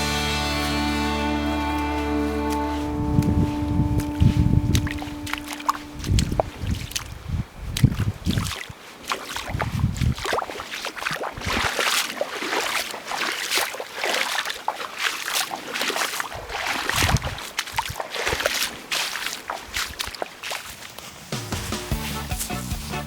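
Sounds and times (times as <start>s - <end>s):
low thumps: 0.0s - 7.0s
water splashing and sloshing: 0.0s - 22.6s.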